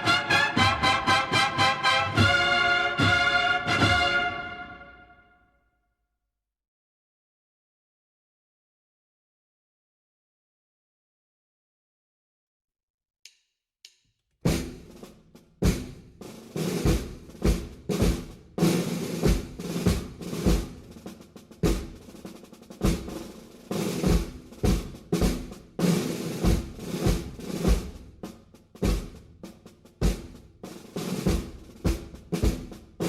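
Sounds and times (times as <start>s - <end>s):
snare drum rolls: 0.0s - 5.0s, 14.5s - 33.0s.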